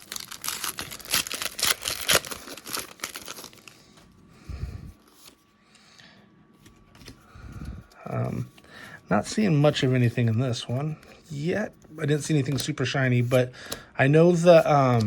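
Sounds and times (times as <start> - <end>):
foil wrapper crinkling and tearing: 0.0 - 3.9.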